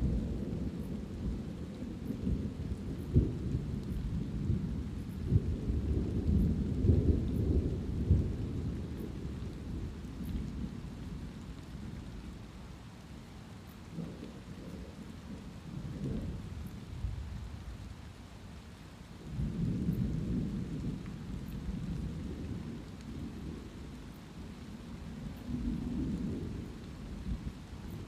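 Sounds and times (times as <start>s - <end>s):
rolling thunder: 0.0s - 11.0s
light rain: 0.0s - 28.0s.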